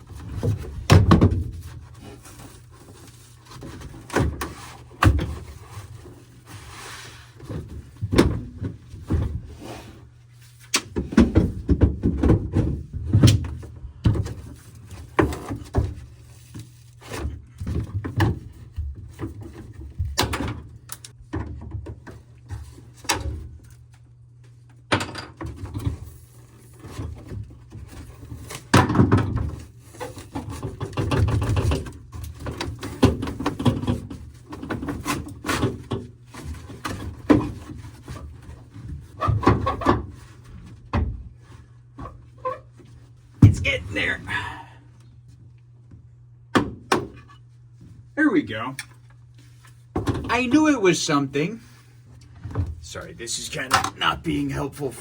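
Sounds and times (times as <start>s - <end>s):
steady low hum: 43.2s - 55.0s.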